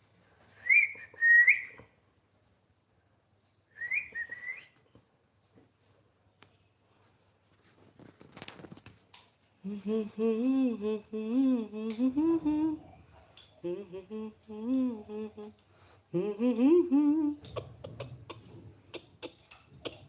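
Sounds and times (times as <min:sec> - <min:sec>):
faint rustle: 0:05.6 - 0:09.7
person humming a tune: 0:09.6 - 0:13.0, 0:13.6 - 0:20.0.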